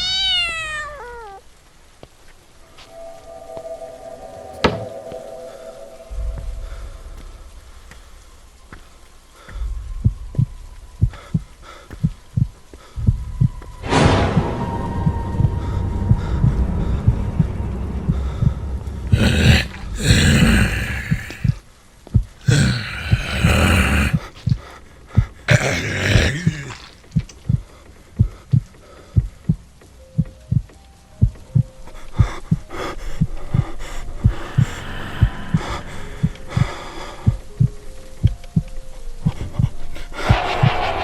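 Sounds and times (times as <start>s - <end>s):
rushing noise bursts: 1.8s - 27.6s, 34.1s - 38.7s, 39.3s - 41.0s
faint held tones: 2.5s - 8.6s
heartbeat thumps: 6.1s - 32.7s, 33.5s - 41.0s.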